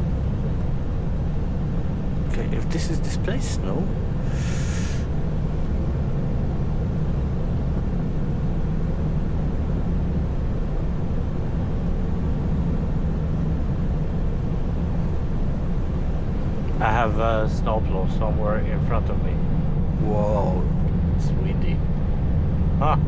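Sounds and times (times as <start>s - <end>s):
truck diesel engine drone: 2.3s - 5.1s
short hiss: 4.3s - 5.1s.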